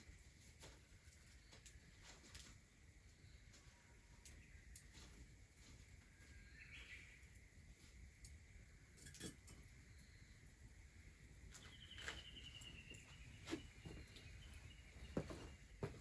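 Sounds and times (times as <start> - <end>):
faint high chirping: 6.0 - 7.9, 8.6 - 16.0.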